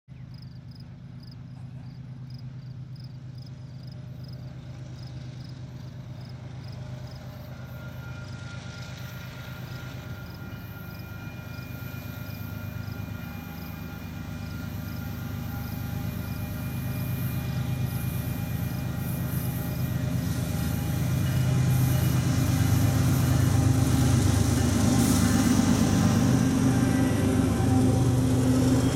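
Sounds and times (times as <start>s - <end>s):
diesel locomotive engines rumbling: 0.1s - 28.9s.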